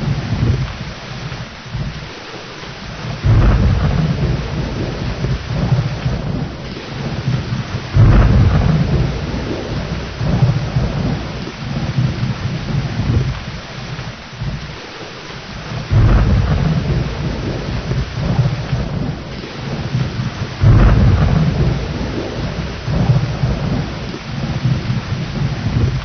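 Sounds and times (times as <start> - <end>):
rolling thunder: 0.0 - 14.9, 15.5 - 26.0
heavy rain: 0.0 - 26.0.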